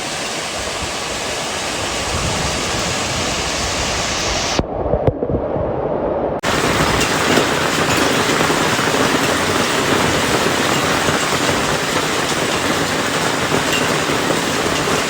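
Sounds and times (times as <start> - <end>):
heavy rain and hail hissing: 0.0 - 4.6, 6.4 - 15.0
hail ticking on surfaces: 6.4 - 15.0.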